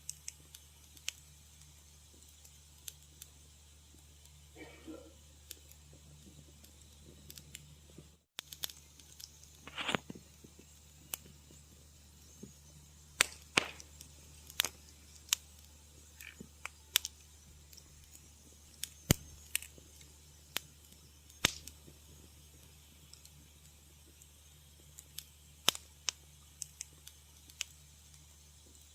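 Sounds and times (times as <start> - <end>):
steady low hum: 0.0 - 28.9
wood fire crackling: 0.0 - 28.9
short hiss: 8.5 - 10.2.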